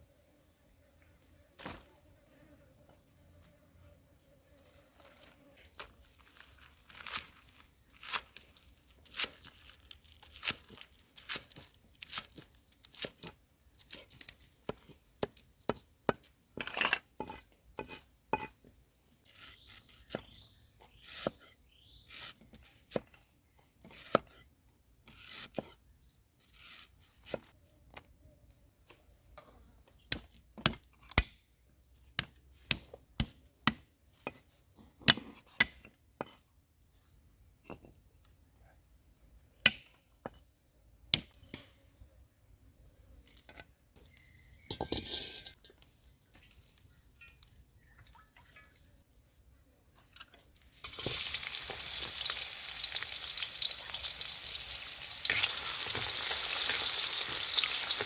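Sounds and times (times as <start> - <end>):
knife scraping on board: 16.6 - 18.6.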